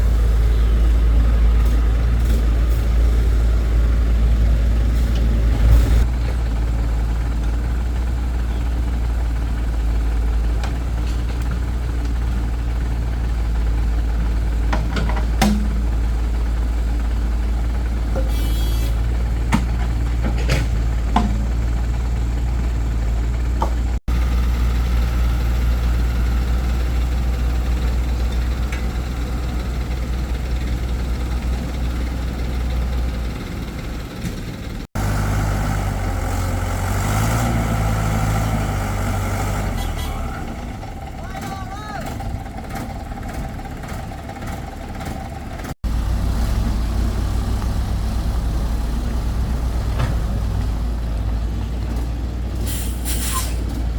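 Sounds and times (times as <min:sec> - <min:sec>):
diesel engine rumbling: 0:00.0 - 0:53.9.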